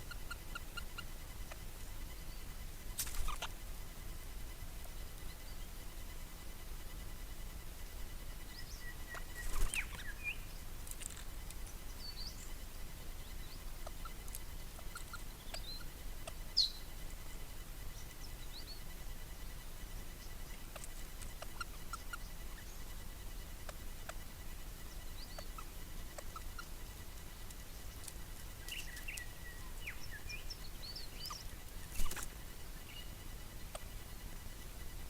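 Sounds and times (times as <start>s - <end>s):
faint ticks: 2.8s - 8.0s, 8.6s - 35.0s
birds chirping and whistling: 8.5s - 10.5s, 11.9s - 12.5s, 14.8s - 15.9s, 16.5s - 16.9s, 24.8s - 26.7s, 27.7s - 33.2s.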